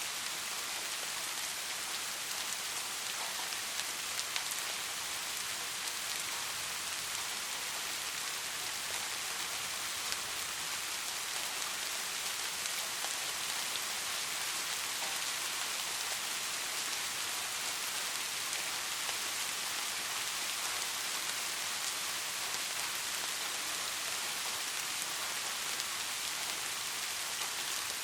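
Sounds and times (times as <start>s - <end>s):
steady rainfall: 0.0s - 28.0s.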